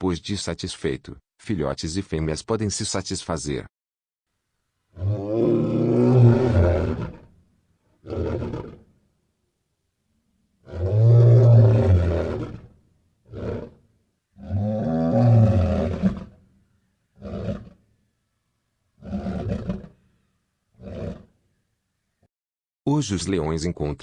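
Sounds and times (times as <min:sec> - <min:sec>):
lion grunting call: 0:04.9 - 0:07.3, 0:08.0 - 0:08.9, 0:14.4 - 0:16.4
lion roaring: 0:04.9 - 0:07.3, 0:08.0 - 0:08.9, 0:10.6 - 0:12.7, 0:13.3 - 0:13.8, 0:14.4 - 0:16.4, 0:17.2 - 0:17.8, 0:19.0 - 0:20.0, 0:20.8 - 0:21.3.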